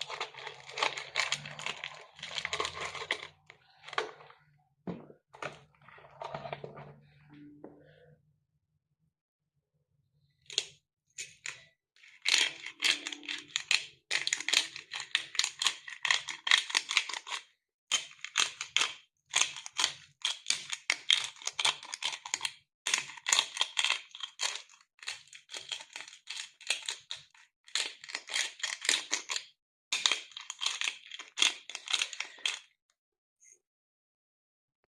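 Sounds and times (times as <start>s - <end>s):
crinkling handling noise: 0.0s - 7.1s.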